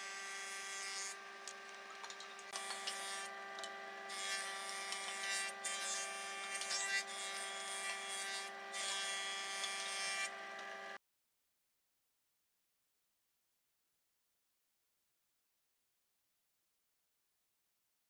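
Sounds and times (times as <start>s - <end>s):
electric power tool rasping wood: 0.0s - 1.2s, 2.5s - 11.0s.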